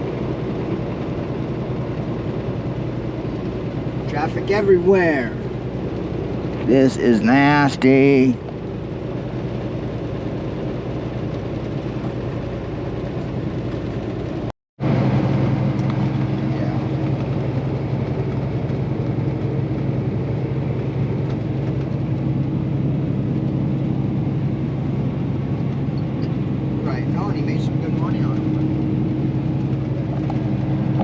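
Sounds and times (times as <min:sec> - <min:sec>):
diesel truck engine running: 0:00.0 - 0:31.0.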